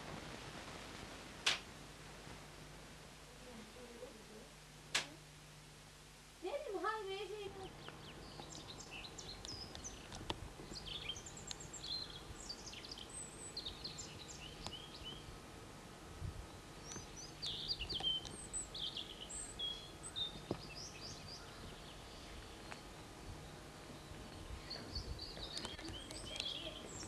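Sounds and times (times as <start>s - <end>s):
faint steady hiss: 0.0s - 27.0s
songbirds singing and chirping: 6.4s - 27.0s.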